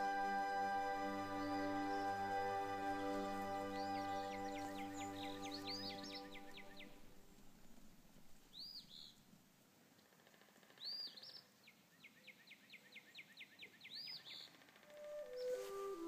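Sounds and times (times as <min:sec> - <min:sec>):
faint bird chirps: 0:03.0 - 0:07.2, 0:10.7 - 0:16.0.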